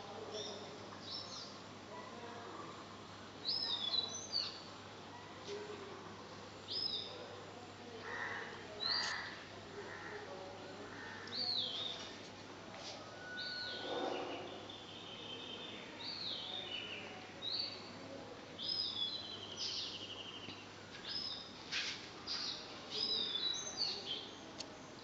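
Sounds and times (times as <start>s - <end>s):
steady background hiss: 0.0s - 25.0s
birds whistling calls: 13.3s - 14.5s.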